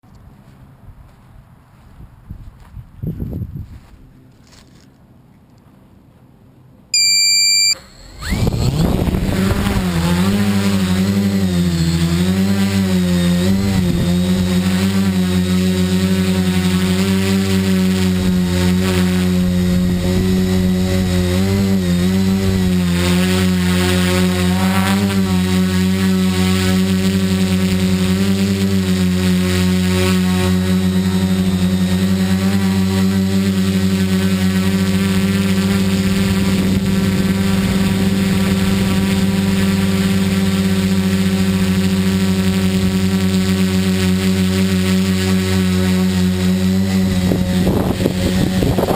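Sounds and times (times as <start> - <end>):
high electronic beep: 7.0 - 8.4
drone motors and propellers spinning: 7.0 - 48.9.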